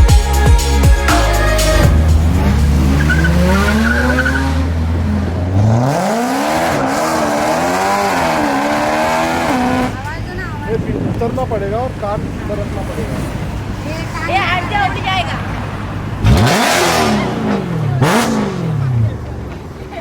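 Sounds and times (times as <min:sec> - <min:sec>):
car engine revving: 0:00.4 - 0:19.7.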